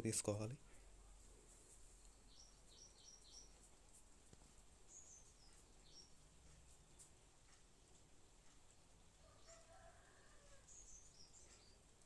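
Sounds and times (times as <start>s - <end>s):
faint bird chirps: 1.8s - 3.8s, 4.9s - 7.2s, 9.2s - 12.0s.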